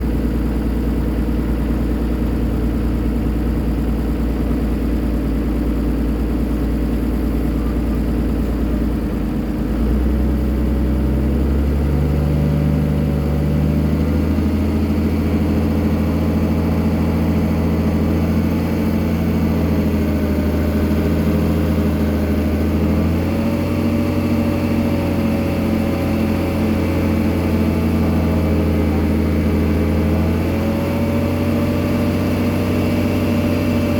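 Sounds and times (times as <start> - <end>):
drilling machine motor running: 21.2 - 33.9.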